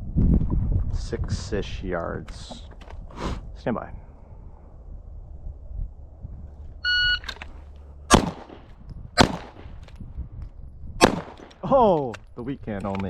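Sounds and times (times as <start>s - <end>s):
shot timer beep: 6.8s - 7.3s
pistol shots: 8.1s - 9.8s, 11.0s - 11.6s.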